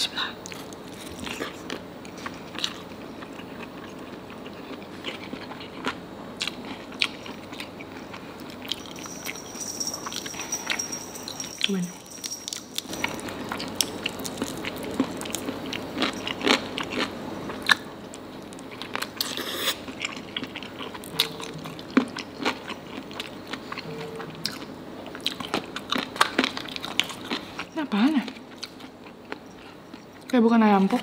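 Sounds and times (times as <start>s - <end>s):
chewing and biting: 0.4s - 9.1s, 11.6s - 27.7s
food crunch: 10.1s - 31.0s.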